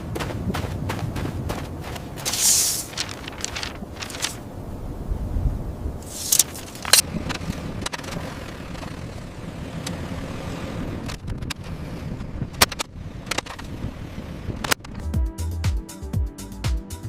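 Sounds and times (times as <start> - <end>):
construction machinery running: 6.3 - 14.8
music beat with thumping bass: 14.9 - 17.0.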